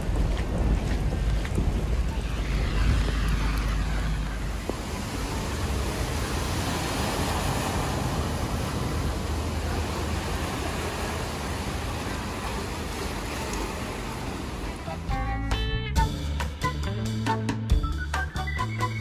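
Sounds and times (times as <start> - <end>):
low rumble: 0.0 - 10.2
heavy rain falling: 0.0 - 15.0.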